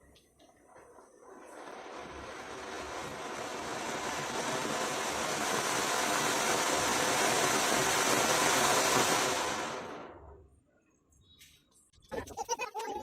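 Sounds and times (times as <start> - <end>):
firework fountain hissing: 0.1 - 10.4.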